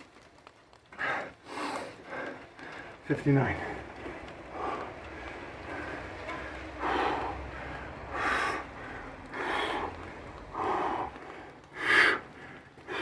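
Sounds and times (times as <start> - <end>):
man gasping breaths: 3.6 - 13.0.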